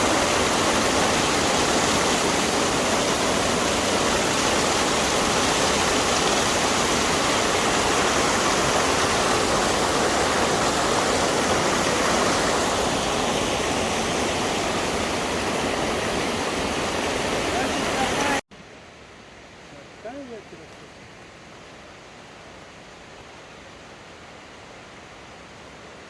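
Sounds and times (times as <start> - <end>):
waterfall rushing: 0.0 - 18.4.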